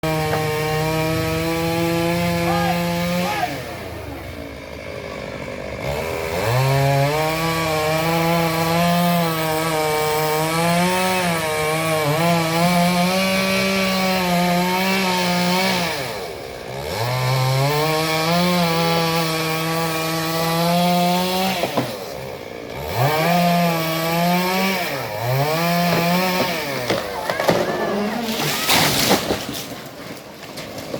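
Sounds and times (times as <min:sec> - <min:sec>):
chainsaw cutting into tree: 0:00.0 - 0:30.9.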